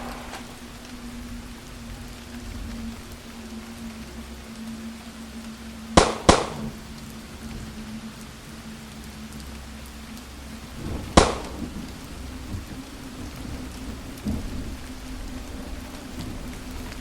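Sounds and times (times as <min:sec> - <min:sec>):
steady rain falling: 0:00.0 - 0:17.0
sharp cracks: 0:06.0 - 0:06.7, 0:11.2 - 0:11.6.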